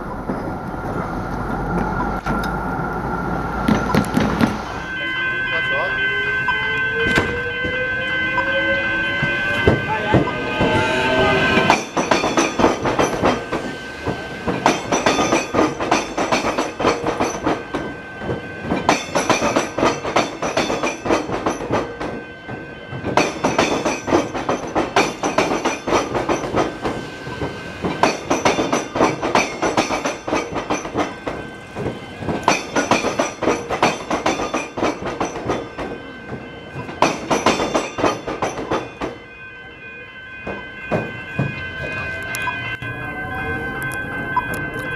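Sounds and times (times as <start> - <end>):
train wheels clattering: 3.6 - 4.7, 11.5 - 39.2, 40.4 - 42.0.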